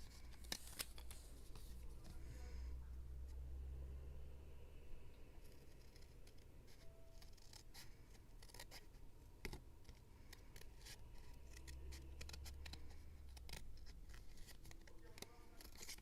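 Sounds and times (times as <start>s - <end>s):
low steady hum: 0.0s - 16.0s
scissors snipping paper: 5.6s - 16.0s.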